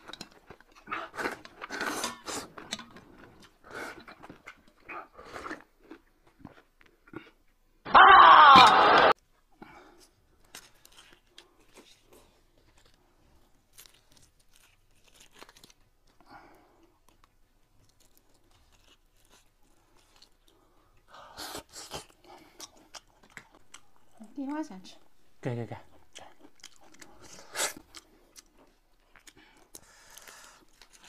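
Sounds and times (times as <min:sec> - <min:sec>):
chewing clicks and crunches: 0:00.0 - 0:07.6, 0:10.4 - 0:21.1, 0:21.9 - 0:24.2, 0:26.0 - 0:31.0
loud cry falling in pitch: 0:07.9 - 0:09.1.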